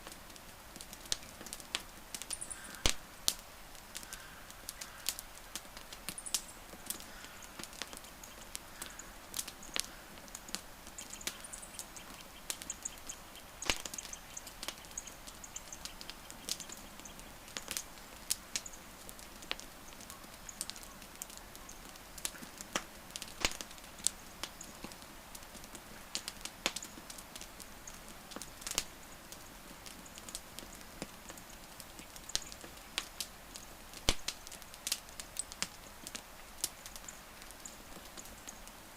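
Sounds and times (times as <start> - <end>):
low steady hiss: 0.0 - 38.9
wood fire popping and snapping: 0.0 - 38.9.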